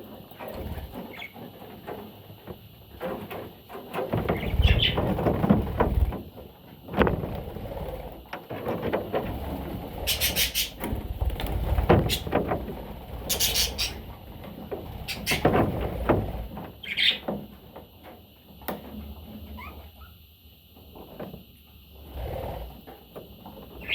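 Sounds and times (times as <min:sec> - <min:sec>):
budgerigar chirping and chattering: 0:10.1 - 0:10.8, 0:13.3 - 0:14.0, 0:15.1 - 0:15.5, 0:16.8 - 0:17.2.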